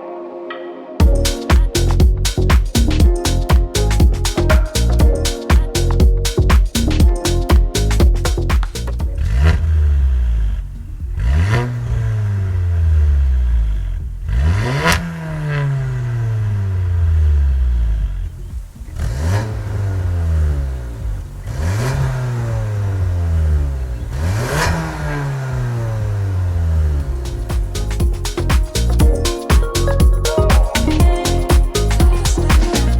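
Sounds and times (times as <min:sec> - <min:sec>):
car engine revving: 0:08.6 - 0:28.9.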